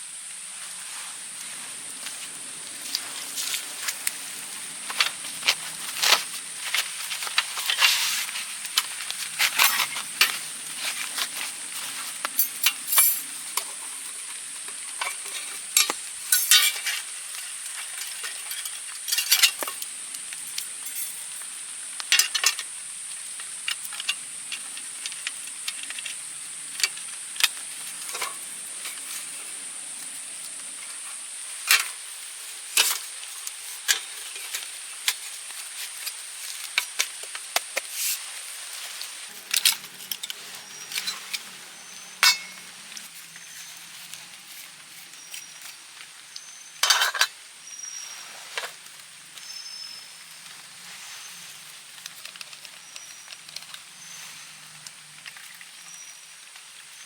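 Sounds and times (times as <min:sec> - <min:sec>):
damp wood hissing: 0:00.0 - 0:12.4, 0:22.6 - 0:46.6, 0:47.6 - 0:52.2, 0:53.8 - 0:55.1
steady high-pitched hiss: 0:00.0 - 0:57.0
wood fire crackling and popping: 0:01.4 - 0:46.9, 0:51.4 - 0:57.0.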